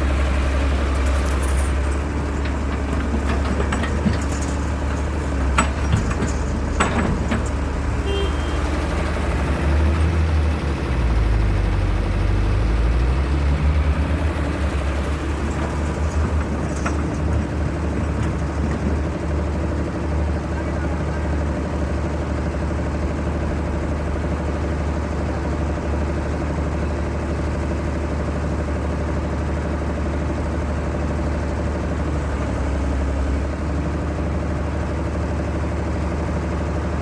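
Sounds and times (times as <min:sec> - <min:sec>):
excavator engine rumbling: 0:00.0 - 0:37.0
metal knocks and clanks: 0:02.4 - 0:07.8.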